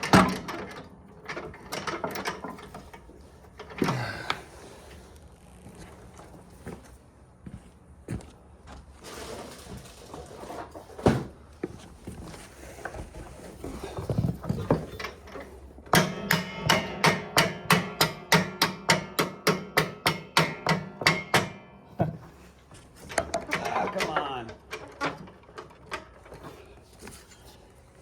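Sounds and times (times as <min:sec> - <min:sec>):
axe hammering on metal bolt: 0:15.9 - 0:22.2.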